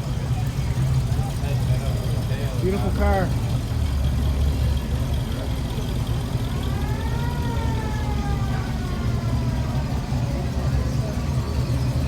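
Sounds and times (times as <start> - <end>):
vehicle engines rumbling: 0.0 - 12.0
siren wail: 6.7 - 9.6.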